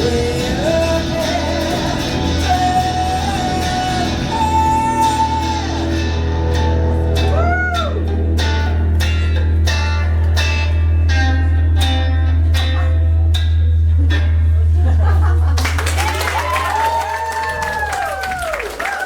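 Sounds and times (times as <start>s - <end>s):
live rock band: 0.0s - 14.4s
strummed guitar chords: 0.0s - 15.1s
low bass drone: 0.0s - 15.6s.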